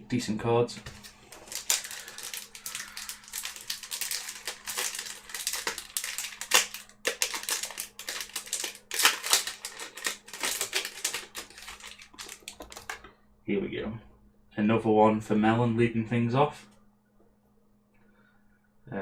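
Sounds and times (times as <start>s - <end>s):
foil wrapper crinkling and tearing: 0.9s - 13.0s.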